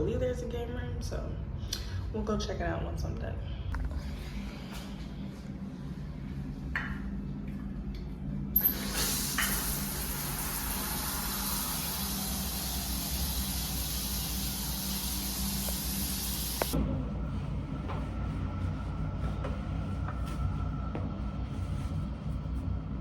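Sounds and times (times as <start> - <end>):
steady low hum: 0.0 - 23.0
shower water spraying: 8.6 - 16.8.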